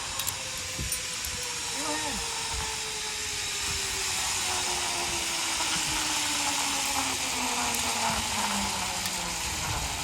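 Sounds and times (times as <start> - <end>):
rushing hiss: 0.0 - 10.0
zipline trolley whirring on cable: 0.0 - 10.0.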